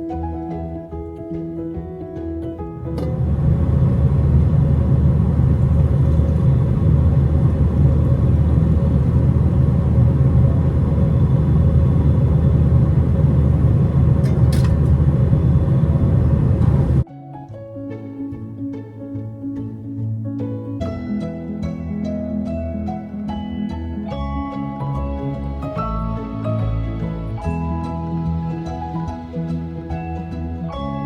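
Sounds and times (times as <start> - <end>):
vehicle interior rumble: 2.4 - 17.0.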